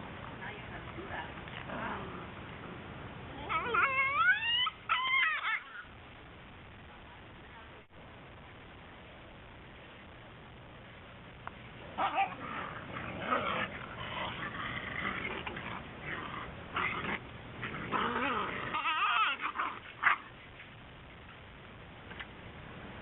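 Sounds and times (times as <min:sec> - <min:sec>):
puppies whining and yipping: 0:03.4 - 0:05.9, 0:18.2 - 0:20.2.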